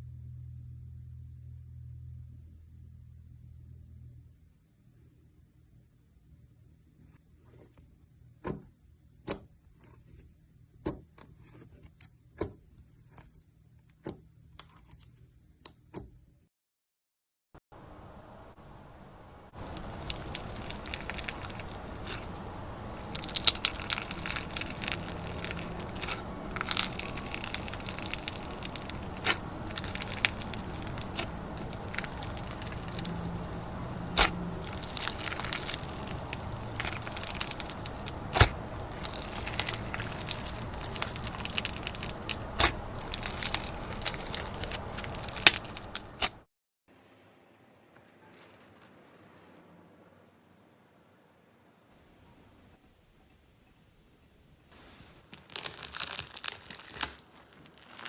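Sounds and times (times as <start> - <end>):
slime crackling and popping: 19.6 - 46.4, 55.3 - 58.0.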